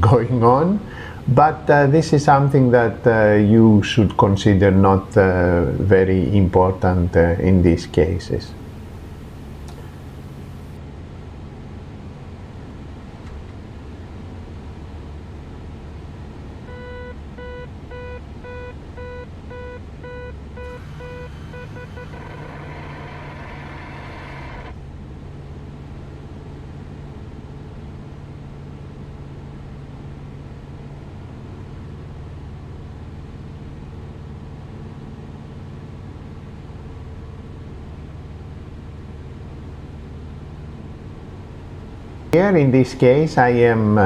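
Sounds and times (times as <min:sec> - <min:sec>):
airplane engine droning: 0:00.0 - 0:33.7, 0:40.7 - 0:44.0
pulsed warning beeps: 0:16.7 - 0:24.7.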